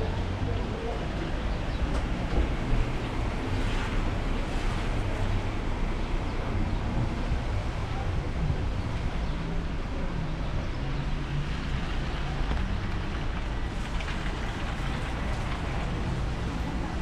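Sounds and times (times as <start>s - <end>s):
rain pattering on umbrella: 11.7s - 17.0s.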